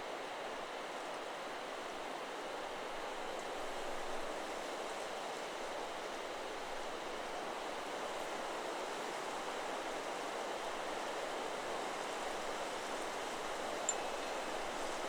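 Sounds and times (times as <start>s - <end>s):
wind rustling through trees: 13.0s - 15.0s.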